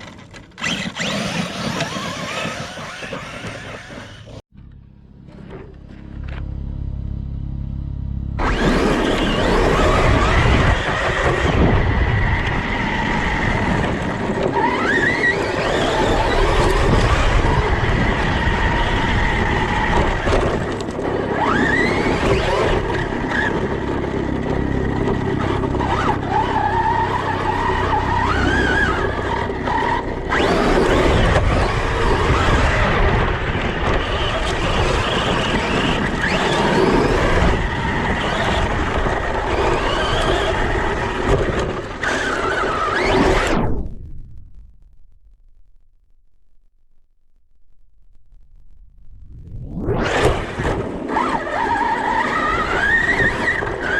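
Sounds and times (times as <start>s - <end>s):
wind: 0.0s - 45.9s, 47.6s - 53.9s
low rumble of tyres: 0.0s - 53.9s
electric motor whining: 0.6s - 4.4s, 8.4s - 43.9s.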